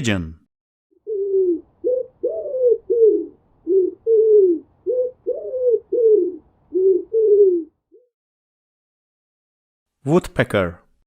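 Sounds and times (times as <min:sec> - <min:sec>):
pigeon cooing: 0:01.0 - 0:08.1.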